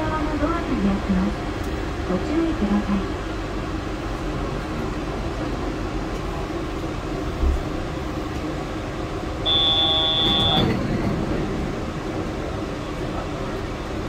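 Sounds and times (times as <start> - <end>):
train car hum and rumble: 0.0 - 14.0
high electronic beep: 9.5 - 10.6.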